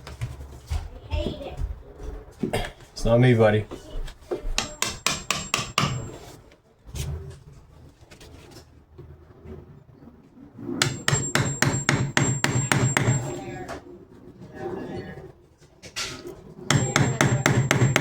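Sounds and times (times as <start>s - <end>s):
rapid hammer taps: 4.6s - 6.2s, 10.8s - 13.4s, 16.7s - 18.0s.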